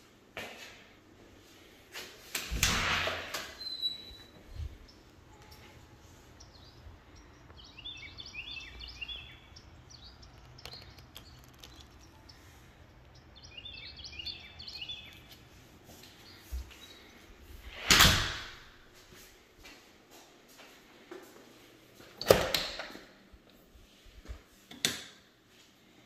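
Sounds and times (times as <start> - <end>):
faint outdoor background noise: 0.0 - 26.0
songbird chirping: 3.6 - 17.5.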